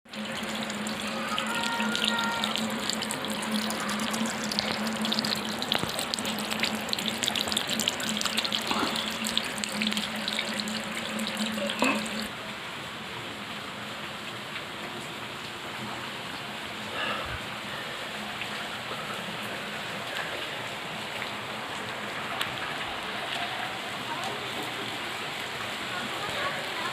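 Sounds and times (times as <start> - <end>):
water running: 0.1 - 12.3
rain falling and splashing: 0.1 - 26.9.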